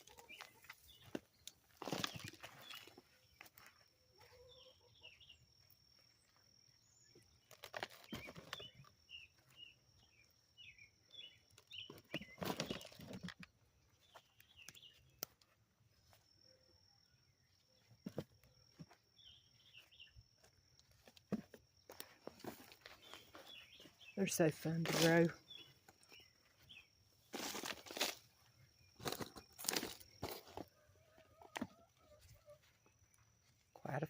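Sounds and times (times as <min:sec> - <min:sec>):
small birds chirping: 0:00.0 - 0:34.0
hands digging through soil: 0:27.2 - 0:30.8.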